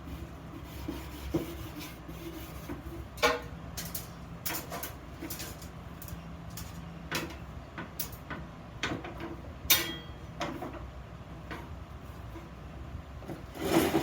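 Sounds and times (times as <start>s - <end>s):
steady low hum: 0.0s - 13.5s
steel workpieces knocking and clinking: 3.2s - 10.2s.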